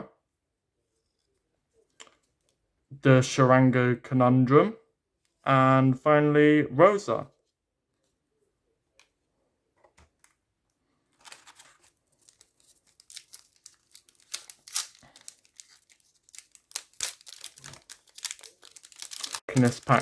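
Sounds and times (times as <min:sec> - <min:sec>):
wrapper tearing and crinkling: 0:11.2 - 0:20.0.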